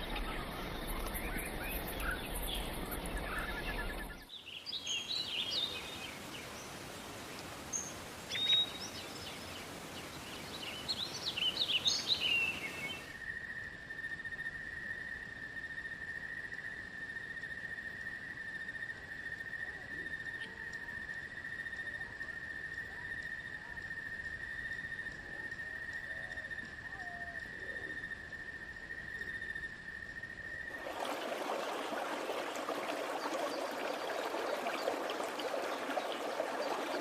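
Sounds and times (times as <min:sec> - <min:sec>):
birds chirping: 0:00.0 - 0:06.8, 0:30.7 - 0:37.0.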